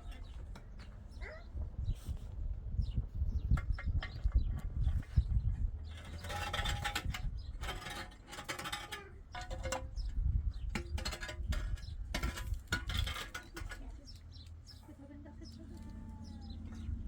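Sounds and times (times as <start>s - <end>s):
rough scraping strokes: 5.8s - 9.8s.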